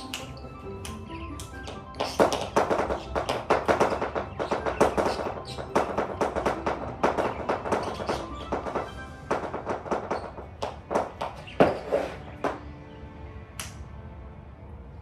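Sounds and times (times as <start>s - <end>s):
rapid sharp percussive tapping: 0.0s - 11.6s
background music: 0.0s - 15.0s.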